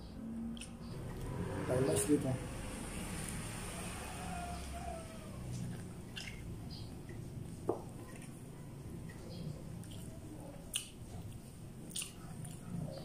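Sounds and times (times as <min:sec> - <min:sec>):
chewing corn: 0:05.4 - 0:06.5, 0:09.1 - 0:13.0.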